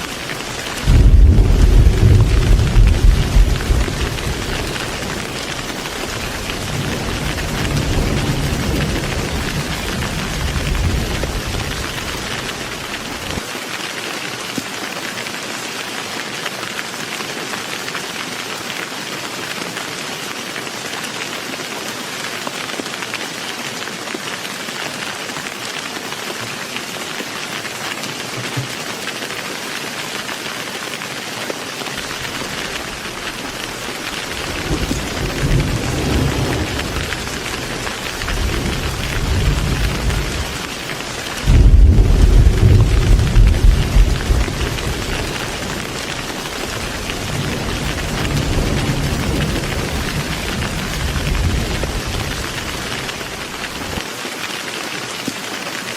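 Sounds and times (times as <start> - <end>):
low thunder rumble: 0.0 - 13.4, 32.0 - 40.7, 41.3 - 54.0
heavy rain: 0.0 - 55.9.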